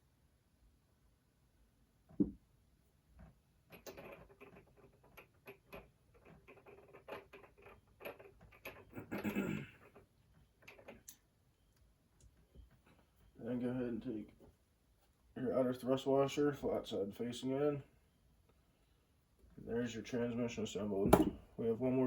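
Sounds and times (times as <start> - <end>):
metal parts clicking and scraping: 3.7 - 11.2
metal part knock: 21.0 - 21.5.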